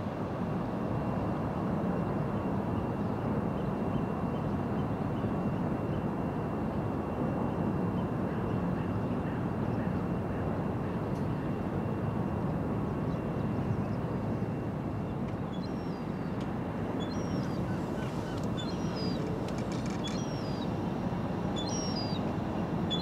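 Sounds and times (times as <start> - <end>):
faint high whine: 2.0 - 23.0
bird chirps: 17.0 - 20.7, 21.6 - 22.2.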